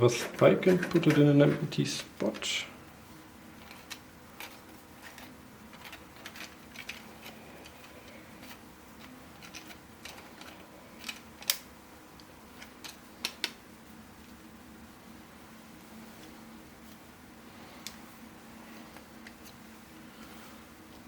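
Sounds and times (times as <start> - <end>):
faint steady hum: 0.0 - 21.0
plastic puzzle pieces clicking: 3.6 - 11.6.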